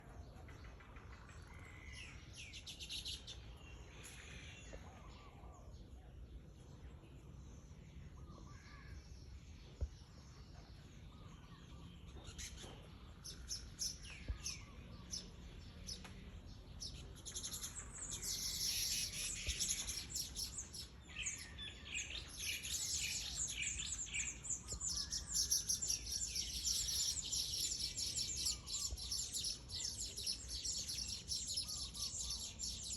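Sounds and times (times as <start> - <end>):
weaverbirds chirping: 0.1 - 32.9.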